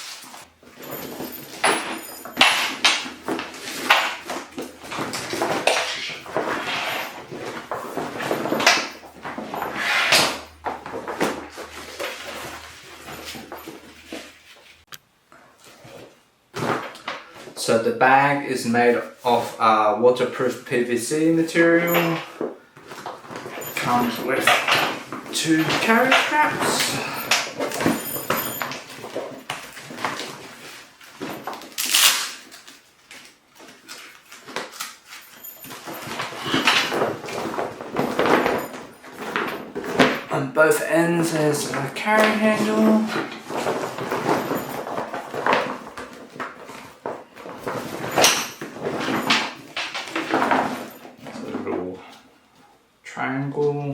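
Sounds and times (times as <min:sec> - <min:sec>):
plastic bag crinkling and rustling: 0:22.8 - 0:40.3, 0:41.6 - 0:51.5.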